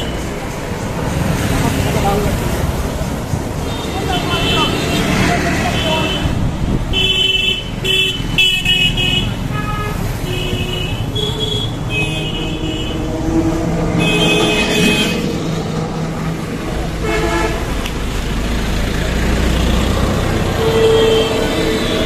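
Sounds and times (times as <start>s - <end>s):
road traffic engines: 0.0s - 22.0s
car horn beeps: 6.9s - 13.1s, 14.0s - 15.3s, 20.6s - 22.0s.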